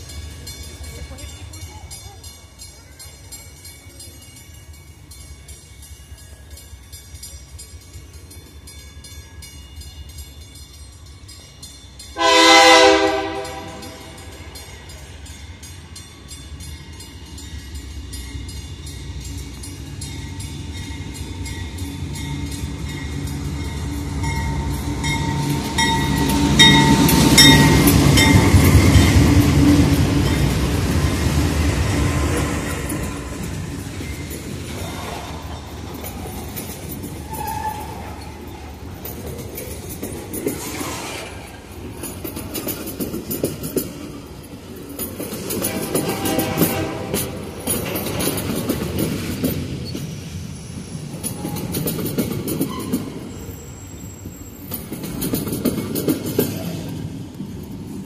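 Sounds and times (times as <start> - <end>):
train wheels on rails: 0.0 - 58.0
train air horn: 12.2 - 14.4, 45.6 - 47.6
locomotive engine rumble: 12.2 - 57.8.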